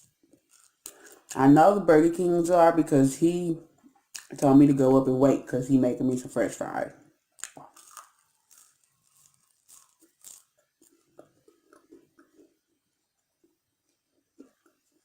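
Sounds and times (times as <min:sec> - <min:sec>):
person chewing crisp fries: 0:00.0 - 0:01.3, 0:07.4 - 0:15.0.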